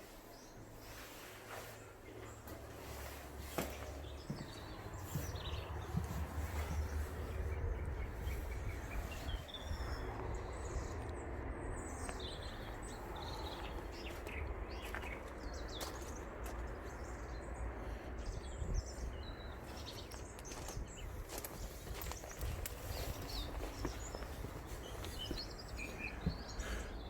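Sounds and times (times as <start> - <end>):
steady low rumble: 3.4 - 27.0
birds chirping and whistling: 3.6 - 11.0, 18.2 - 27.0.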